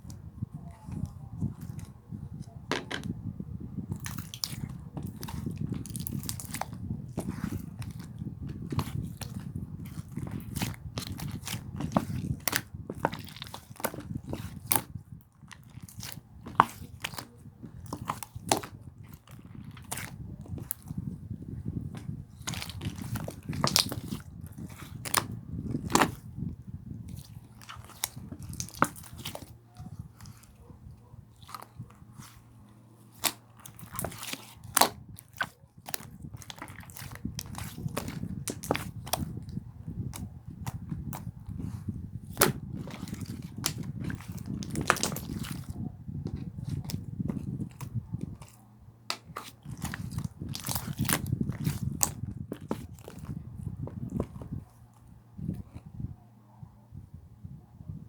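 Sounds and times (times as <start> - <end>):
slime squeezed by hand: 33.1 - 54.6.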